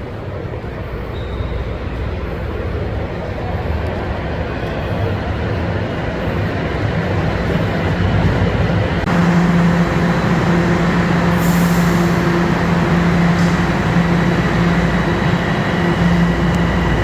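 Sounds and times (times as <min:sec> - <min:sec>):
train wheels rumbling: 0:09.0 - 0:17.0
constant low hum: 0:09.1 - 0:17.0.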